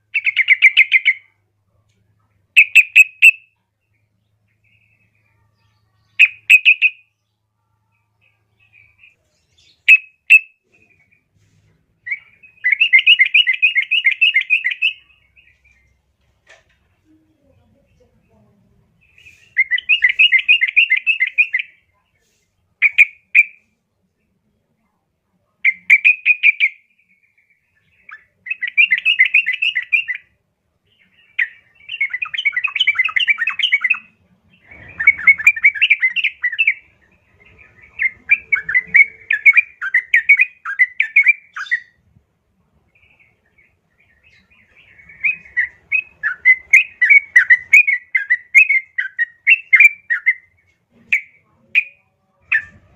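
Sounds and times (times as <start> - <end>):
bird chattering calls: 2.6 - 3.4, 31.4 - 41.9.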